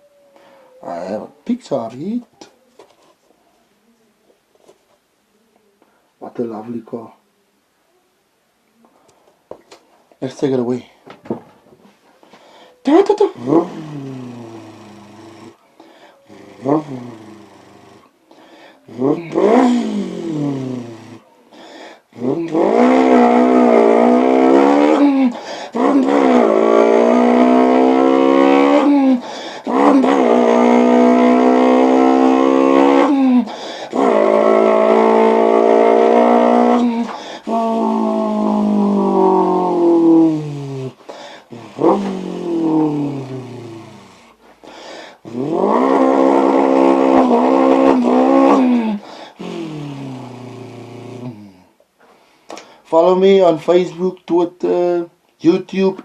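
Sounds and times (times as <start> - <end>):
man imitating an engine with voice: 12.8 - 15.5, 16.3 - 17.8, 18.9 - 21.2, 22.2 - 44.0, 45.3 - 51.5.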